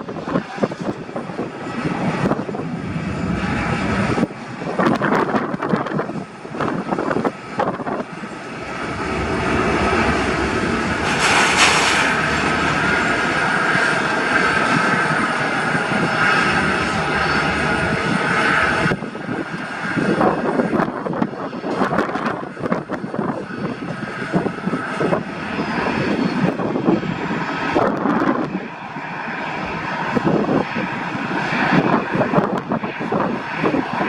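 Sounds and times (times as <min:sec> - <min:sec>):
airliner engines whining: 0:00.0 - 0:34.0
wind buffeting microphone: 0:00.0 - 0:34.0
rush of hiss: 0:10.7 - 0:12.9.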